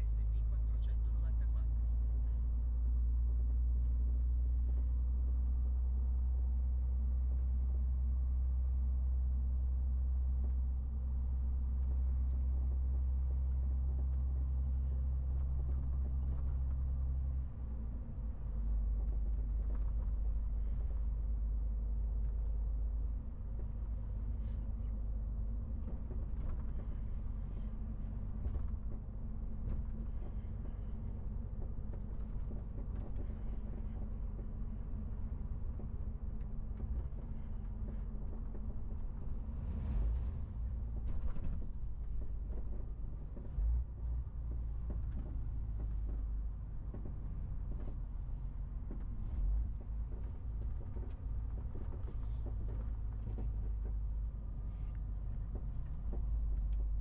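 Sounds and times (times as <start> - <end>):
truck diesel engine rumble: 0.0 - 57.0
faint clicks and rattles: 25.6 - 39.4, 40.9 - 57.0.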